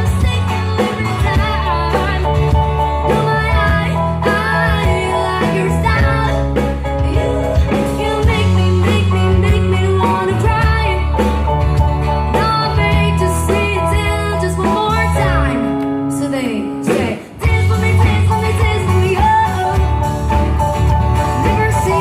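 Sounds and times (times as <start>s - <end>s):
heavy bass line: 0.0s - 15.7s, 16.9s - 22.0s
guitar: 0.0s - 22.0s
person singing: 21.2s - 22.0s.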